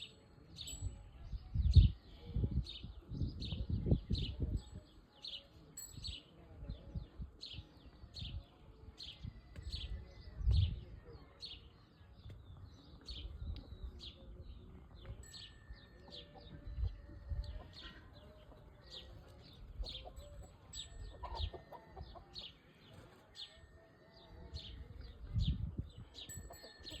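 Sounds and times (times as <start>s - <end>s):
chickens clucking: 16.0s - 23.3s.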